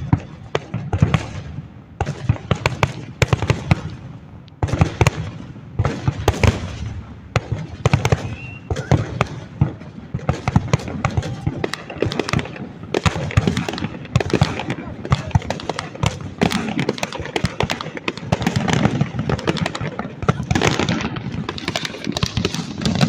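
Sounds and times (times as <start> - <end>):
fireworks booming and crackling: 0.0 - 23.0.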